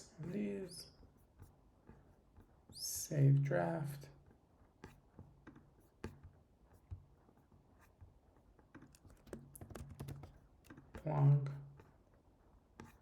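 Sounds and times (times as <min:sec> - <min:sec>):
computer mouse clicks: 0:08.8 - 0:10.8.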